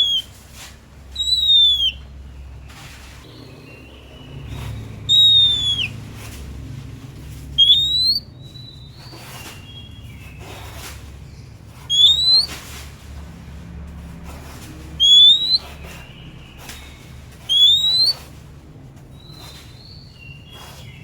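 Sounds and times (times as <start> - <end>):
bird singing whistled notes: 0.0 - 0.4, 1.1 - 2.6, 3.2 - 6.0, 7.5 - 10.5, 11.3 - 12.6, 14.9 - 18.3
low hum: 0.0 - 19.2.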